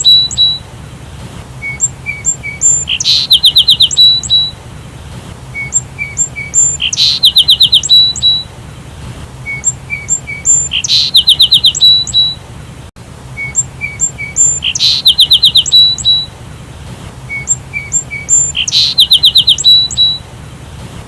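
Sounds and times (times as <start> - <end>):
sparrow chirping: 0.0 - 0.6, 1.6 - 4.6, 5.5 - 8.5, 9.4 - 12.4, 13.4 - 16.3, 17.3 - 20.2.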